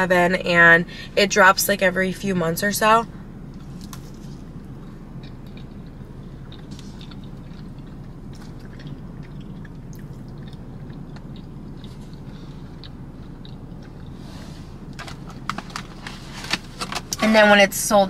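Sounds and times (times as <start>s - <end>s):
low steady hum: 0.0s - 18.0s
person chewing wetly: 3.5s - 14.2s
sharp mouth clicks and crackles: 4.8s - 14.2s.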